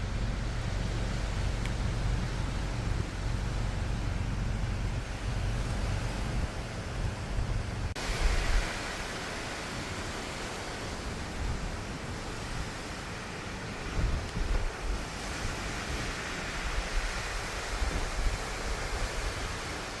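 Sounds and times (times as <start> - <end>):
strong wind blowing: 0.0 - 20.0
wind buffeting microphone: 0.0 - 20.0.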